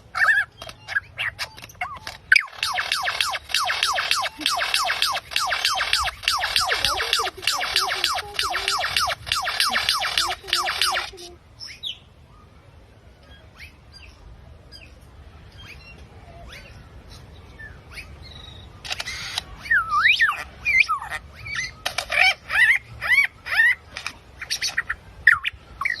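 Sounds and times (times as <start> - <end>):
rapid sweeping bird calls: 0.0 - 11.4
birds chirping: 0.0 - 26.0
sharp clicks: 0.6 - 11.3, 18.8 - 19.5.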